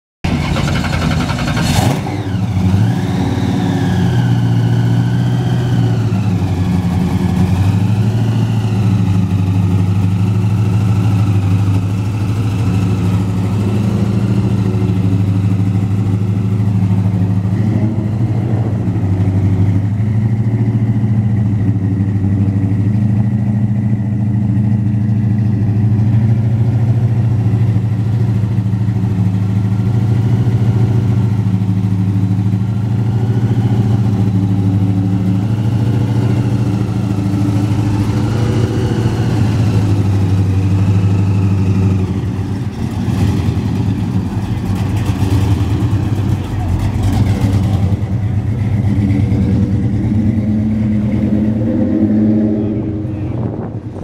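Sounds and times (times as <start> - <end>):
car engine idling: 0.2 - 54.0.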